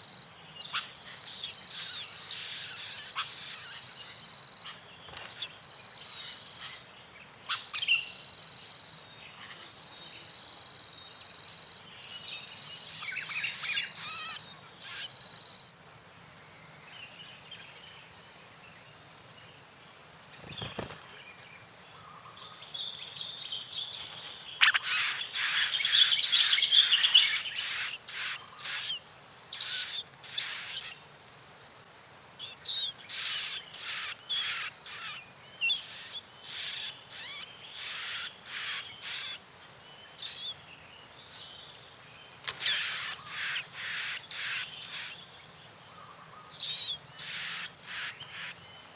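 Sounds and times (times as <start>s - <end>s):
cricket chorus trilling: 0.0s - 48.9s
bird chirps: 22.0s - 29.0s.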